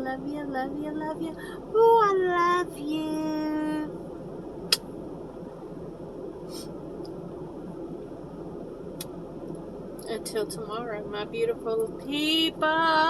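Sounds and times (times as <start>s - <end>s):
steady low background noise: 0.0s - 13.0s
sharp click: 4.7s - 4.9s.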